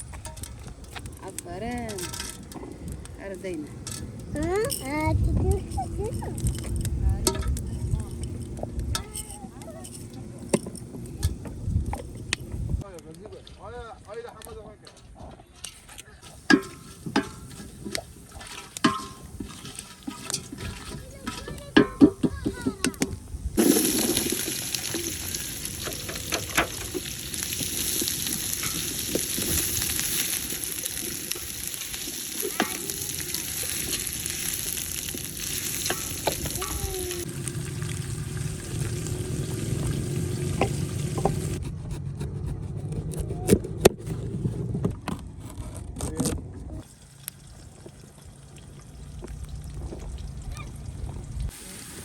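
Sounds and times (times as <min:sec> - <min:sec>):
utensil stirring in pot: 0:16.2 - 0:23.0, 0:23.6 - 0:41.6
food sizzling in oil: 0:16.2 - 0:41.6, 0:51.4 - 0:52.0.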